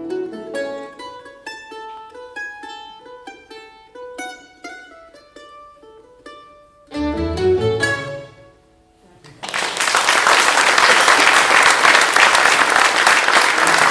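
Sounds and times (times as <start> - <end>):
plucked string melody: 0.0 - 9.0.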